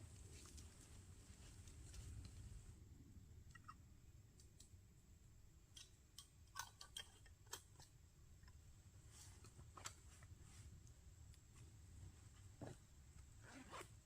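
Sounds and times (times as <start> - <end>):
soft irregular clicks: 3.4 - 4.8.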